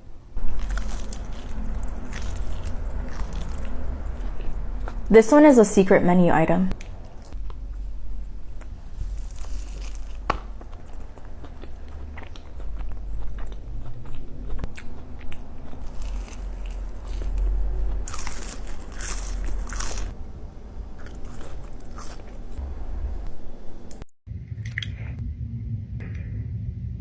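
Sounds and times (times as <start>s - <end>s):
crunchy food chewing: 0.4s - 5.1s, 6.7s - 20.2s, 20.8s - 23.3s.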